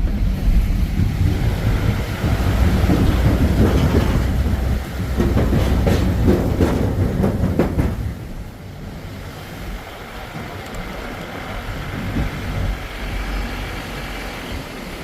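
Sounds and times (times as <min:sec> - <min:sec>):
rattling clacks: 0:00.0 - 0:08.6
vehicle rumbling: 0:00.0 - 0:15.0.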